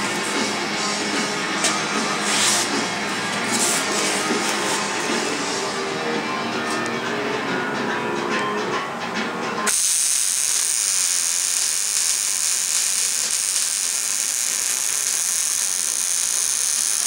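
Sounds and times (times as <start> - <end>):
arc welding hiss: 9.7 - 17.0.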